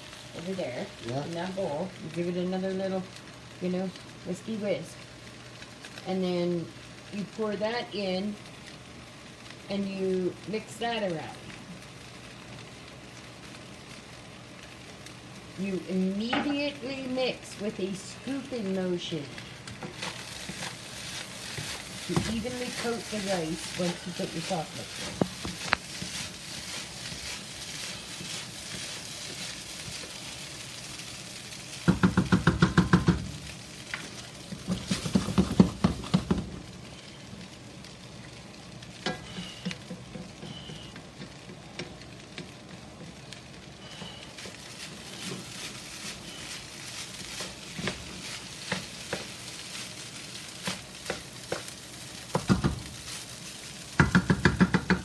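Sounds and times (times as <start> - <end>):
rice sizzling in a wok: 0.0 - 55.0
spatula scraping a wok: 19.4 - 31.2, 43.8 - 52.4.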